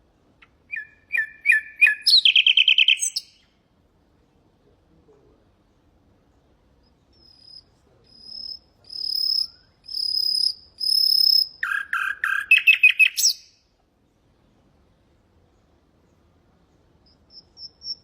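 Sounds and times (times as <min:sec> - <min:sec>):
nightingale singing: 0:00.4 - 0:03.6, 0:06.3 - 0:13.7, 0:17.0 - 0:18.0.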